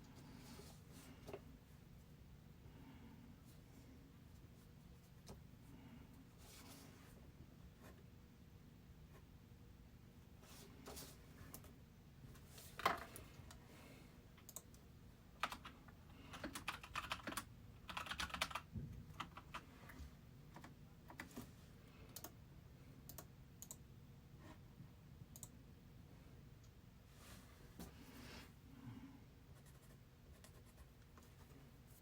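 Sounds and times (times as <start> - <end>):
typing on computer keyboard: 15.4 - 19.6.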